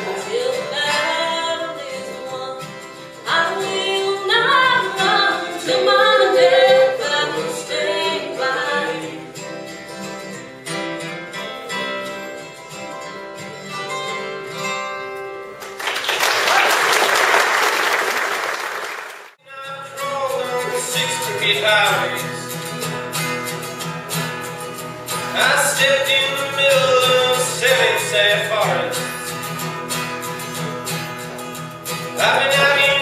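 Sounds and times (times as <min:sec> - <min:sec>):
acoustic guitars: 0:00.0 - 0:33.0
audience applause: 0:15.6 - 0:19.4
person singing: 0:19.4 - 0:22.4, 0:32.2 - 0:33.0.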